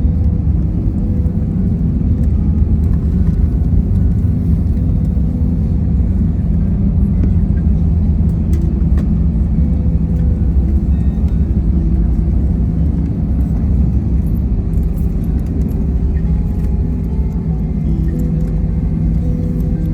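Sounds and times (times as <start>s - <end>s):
airliner cabin rumble: 0.0s - 19.9s
steady humming tones: 0.0s - 19.9s.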